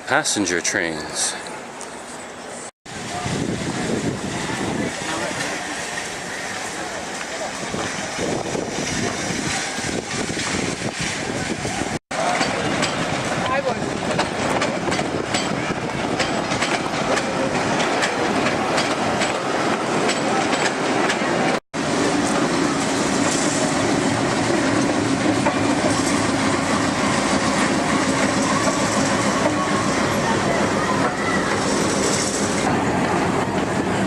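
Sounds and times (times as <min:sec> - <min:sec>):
low even train hum: 0:00.0 - 0:34.0
train wheels clicking over rail joints: 0:12.2 - 0:34.0.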